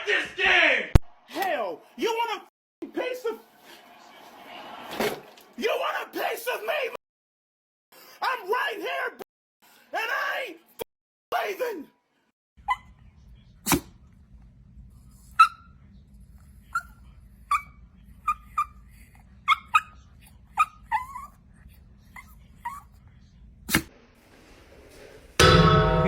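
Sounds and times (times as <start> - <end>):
small dog yipping: 12.6 - 12.9, 15.4 - 15.7, 16.7 - 21.4, 22.1 - 22.9.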